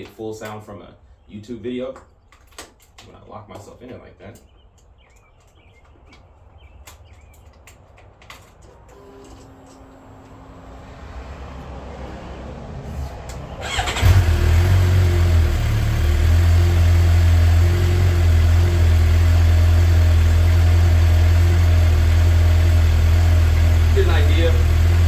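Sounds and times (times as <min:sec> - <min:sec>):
motorcycle engine starting and idling: 0:12.8 - 0:25.0.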